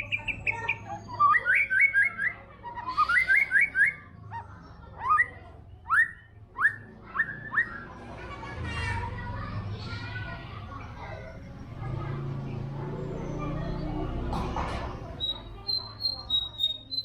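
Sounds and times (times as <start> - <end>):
bird singing whistled notes: 15.2 - 17.0.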